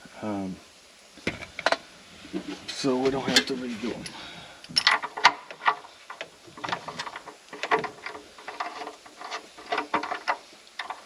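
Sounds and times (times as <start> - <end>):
hand tools clinking and knocking: 2.4 - 11.0.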